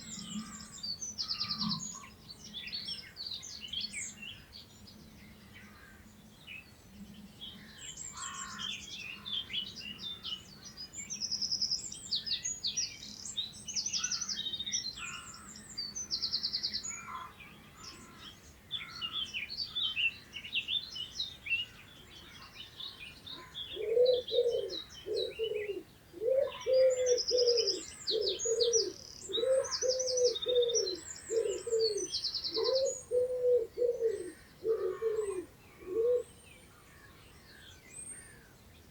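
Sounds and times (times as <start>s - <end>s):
songbirds chirping and trilling: 0.0s - 38.9s
pigeon cooing: 23.8s - 36.3s.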